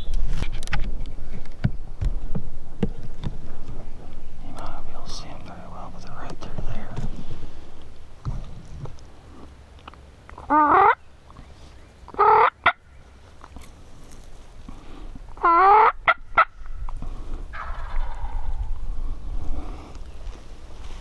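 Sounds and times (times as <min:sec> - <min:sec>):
turkeys gobbling: 0:10.4 - 0:11.0, 0:12.1 - 0:12.8, 0:15.4 - 0:16.6, 0:17.5 - 0:19.0.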